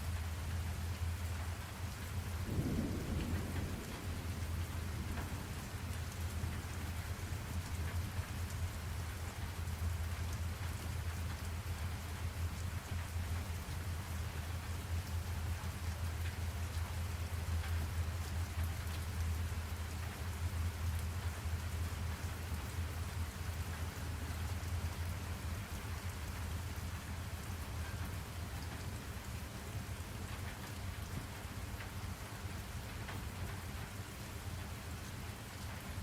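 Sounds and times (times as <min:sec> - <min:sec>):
steady rain patter: 0:00.0 - 0:36.0
low rumble: 0:02.5 - 0:08.1.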